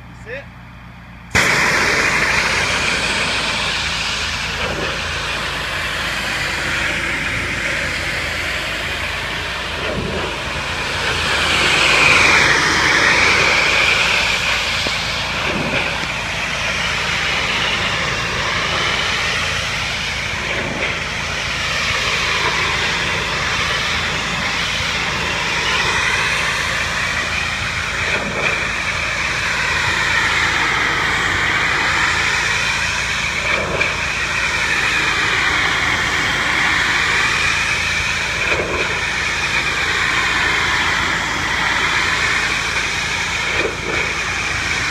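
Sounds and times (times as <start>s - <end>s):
pressure washer drone: 0.0s - 44.9s
water jet hissing on siding: 1.3s - 44.9s.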